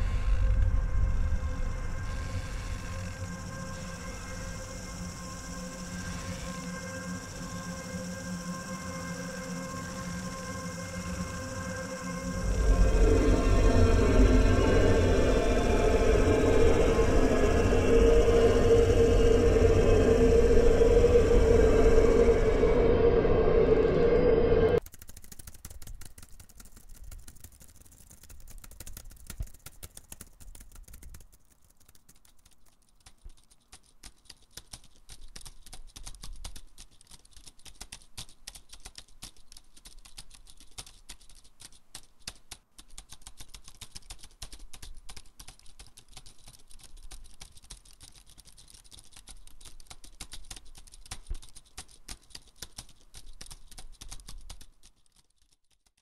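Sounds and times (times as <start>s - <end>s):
laptop keyboard typing: 24.8s - 56.0s.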